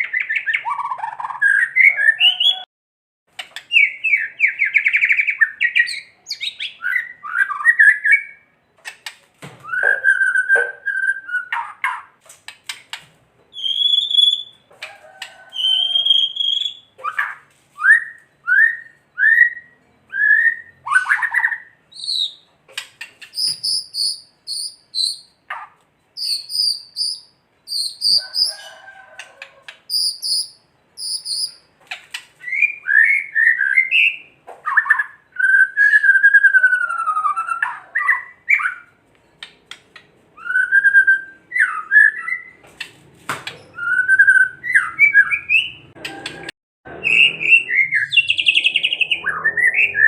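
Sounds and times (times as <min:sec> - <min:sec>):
bird singing whistled phrases: 0:00.0 - 0:02.7, 0:03.8 - 0:08.5, 0:09.6 - 0:11.7, 0:13.5 - 0:14.6, 0:15.6 - 0:22.4, 0:23.3 - 0:25.4, 0:26.2 - 0:28.5, 0:29.9 - 0:31.7, 0:40.4 - 0:42.6, 0:43.7 - 0:45.9, 0:47.0 - 0:50.0.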